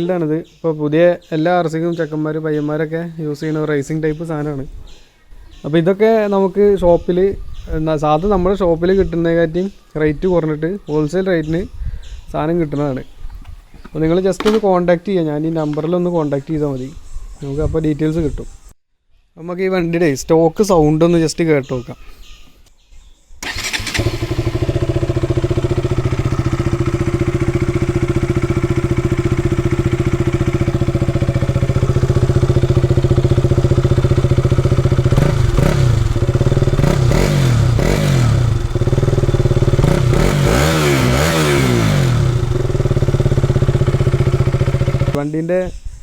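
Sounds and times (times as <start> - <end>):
motorcycle engine idling and revving: 23.4 - 45.2.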